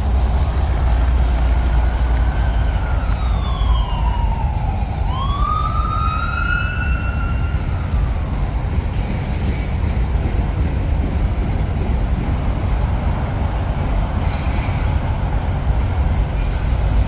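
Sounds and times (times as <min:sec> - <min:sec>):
freight train rumbling over bridge: 0:00.0 - 0:17.0.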